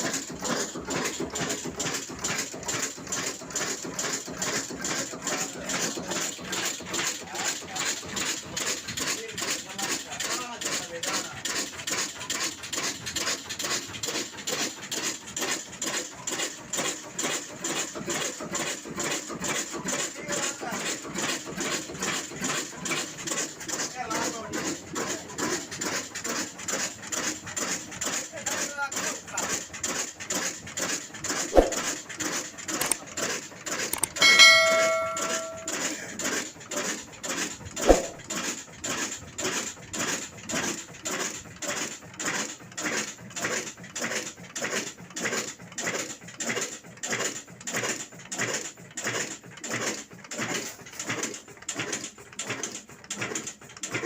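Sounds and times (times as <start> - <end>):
sharp metallic clang: 31.6 - 31.8, 34.0 - 35.8, 37.8 - 38.2
struck metal ringing: 34.0 - 35.8.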